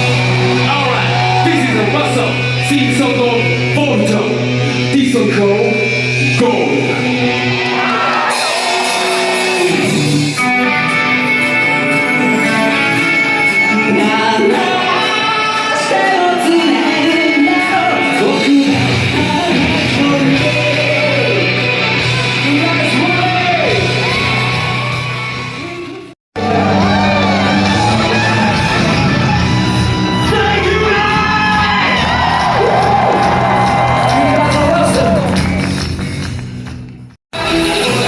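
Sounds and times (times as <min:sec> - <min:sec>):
crowd yelling and whooping: 0:00.0 - 0:02.7, 0:06.8 - 0:10.3, 0:23.7 - 0:36.2
live band playing: 0:00.0 - 0:38.0
person singing: 0:11.1 - 0:24.0, 0:37.4 - 0:38.0.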